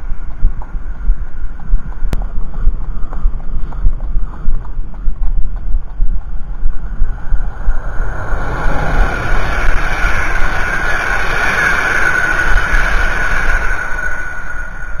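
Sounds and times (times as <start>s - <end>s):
horse hoofbeats: 0.2s - 7.5s
train passing: 6.9s - 15.0s.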